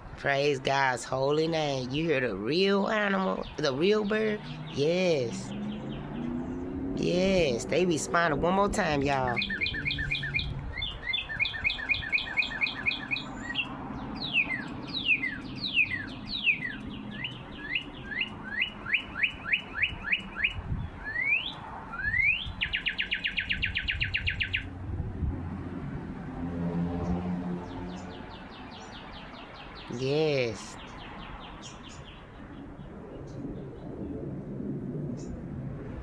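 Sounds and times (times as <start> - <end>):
birds singing varied phrases: 0.3 - 24.7, 27.8 - 32.4
fast even bird trill: 9.1 - 24.7.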